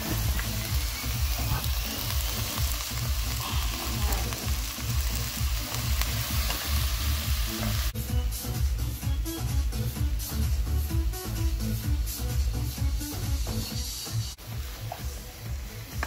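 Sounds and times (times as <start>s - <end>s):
potatoes sizzling in a pot: 0.0s - 8.0s, 12.2s - 16.0s
background music beat: 0.0s - 16.0s.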